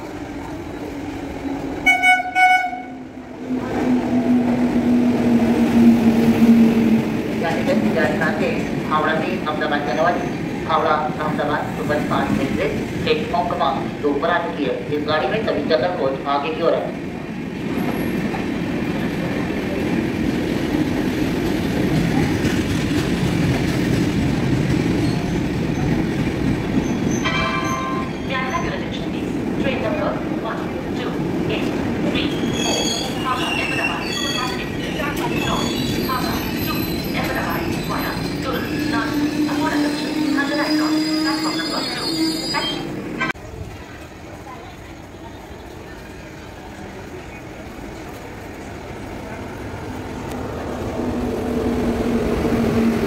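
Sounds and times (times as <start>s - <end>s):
train rumbling on rails: 0.0s - 53.0s
locomotive air horn blasts: 1.8s - 3.0s.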